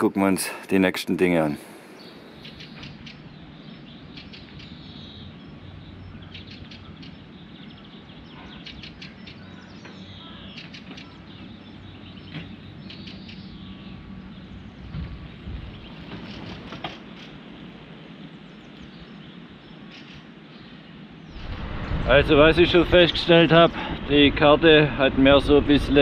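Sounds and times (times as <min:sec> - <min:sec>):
songbirds singing: 0:00.0 - 0:26.0
low thumps: 0:14.8 - 0:16.3, 0:21.3 - 0:23.4.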